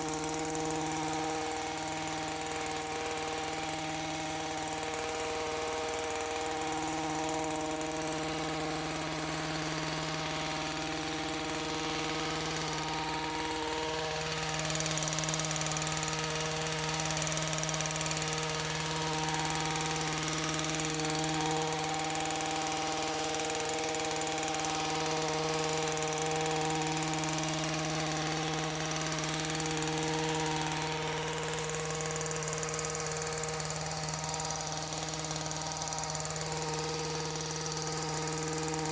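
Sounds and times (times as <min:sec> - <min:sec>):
hedge trimmer engine running: 0:00.0 - 0:38.9.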